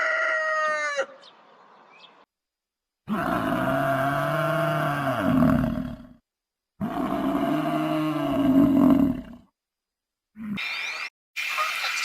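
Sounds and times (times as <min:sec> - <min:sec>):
big cat roaring: 0:03.1 - 0:06.2, 0:06.8 - 0:09.5.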